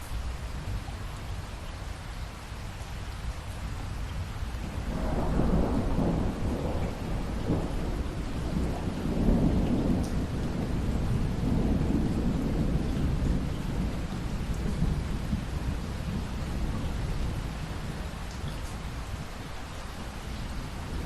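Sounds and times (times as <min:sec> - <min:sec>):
steady rain: 0:00.0 - 0:21.0
rolling thunder: 0:04.6 - 0:19.4, 0:20.0 - 0:21.0.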